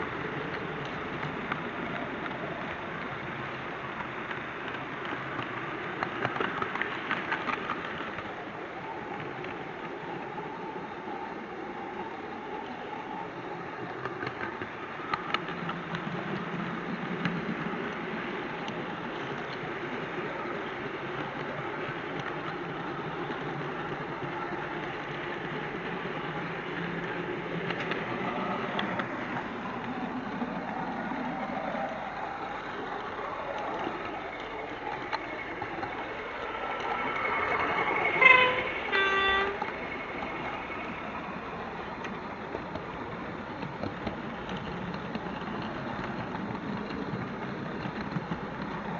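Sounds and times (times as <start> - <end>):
model train rumbling on track: 0.0 - 48.9
locomotive horn toot: 38.1 - 39.7.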